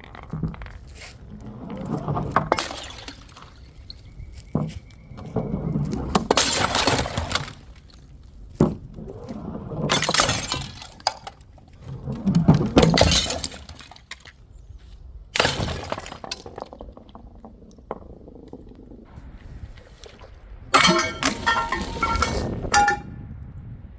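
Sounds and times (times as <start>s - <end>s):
glass bottles smashing: 2.1s - 4.0s, 6.1s - 7.8s, 9.9s - 11.4s, 12.6s - 14.2s, 15.4s - 16.7s, 20.7s - 23.1s
glass shards clinking: 20.8s - 23.1s.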